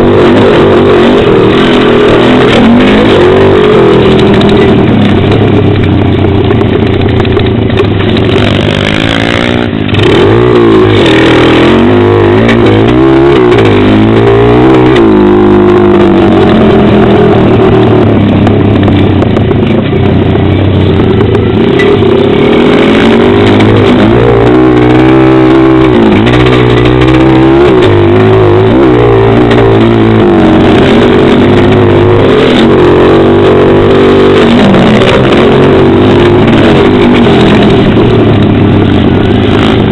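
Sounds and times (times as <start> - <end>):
pit bike engine revving: 0.0 - 19.6, 20.3 - 39.9.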